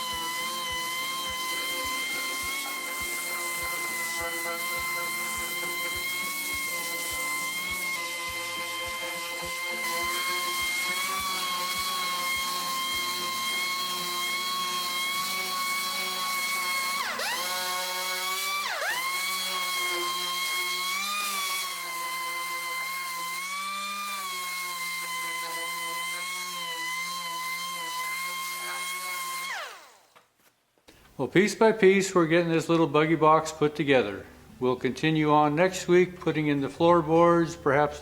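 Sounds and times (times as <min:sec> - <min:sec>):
electric drill whine: 0:00.0 - 0:30.2.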